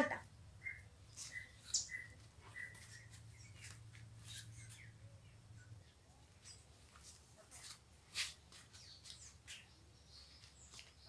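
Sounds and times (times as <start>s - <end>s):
low steady hum: 0.0s - 8.1s
small birds chirping: 0.0s - 11.0s.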